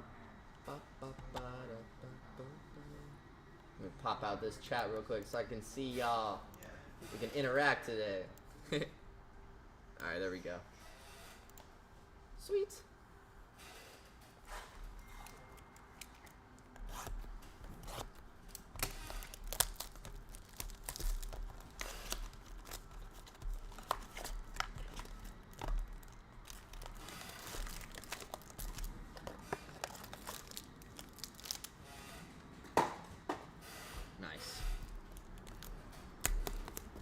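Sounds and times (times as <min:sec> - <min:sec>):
plastic packaging crinkling: 0:15.1 - 0:31.8, 0:34.8 - 0:37.0.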